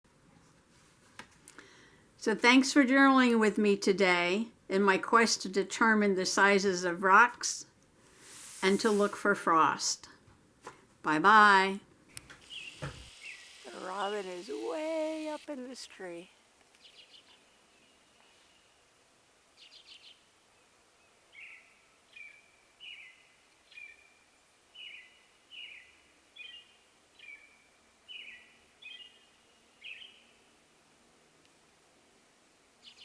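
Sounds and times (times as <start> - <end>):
robin singing: 12.4 - 18.1, 19.6 - 20.2, 21.0 - 24.1, 24.8 - 30.4.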